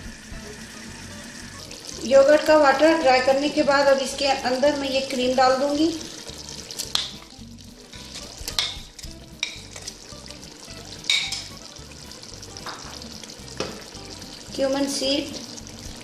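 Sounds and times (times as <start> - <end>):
curry sizzling in a pot: 0.0 - 16.0.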